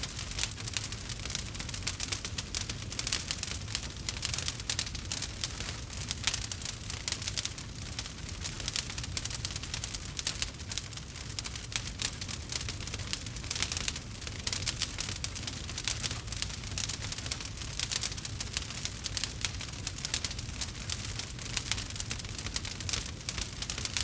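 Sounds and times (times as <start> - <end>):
low rumble of flames: 0.0 - 24.0
wood crackling and popping: 0.0 - 24.0.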